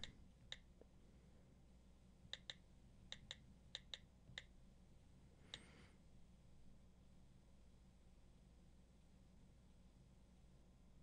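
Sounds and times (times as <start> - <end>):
on-screen keyboard clicks: 0.0 - 0.7, 2.3 - 4.5.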